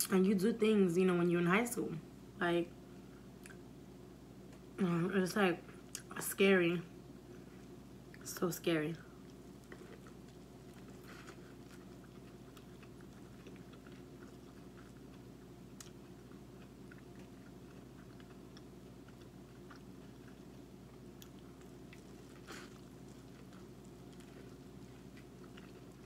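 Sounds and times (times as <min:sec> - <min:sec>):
steady low hum: 0:00.0 - 0:26.0
person chewing corn: 0:09.2 - 0:26.0.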